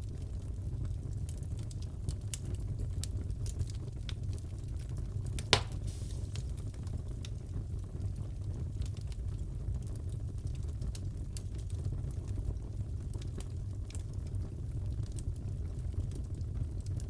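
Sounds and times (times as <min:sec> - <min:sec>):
fireplace crackling: 0:00.8 - 0:09.3, 0:09.9 - 0:17.0
fire pop: 0:05.3 - 0:07.4.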